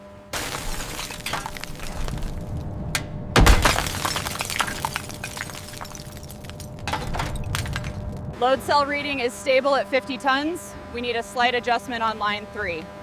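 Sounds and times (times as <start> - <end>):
ice cracking and snapping: 0.4 - 2.7, 3.4 - 8.3
heavy crash: 0.4 - 8.4.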